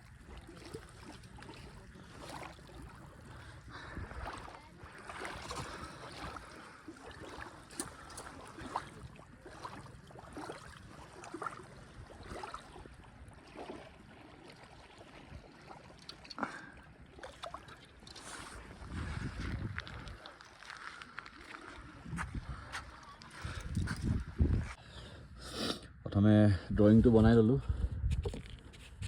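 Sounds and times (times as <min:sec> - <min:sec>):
small waves lapping: 0:00.0 - 0:25.4
wind on microphone: 0:18.5 - 0:20.2, 0:21.8 - 0:24.8, 0:26.9 - 0:29.0.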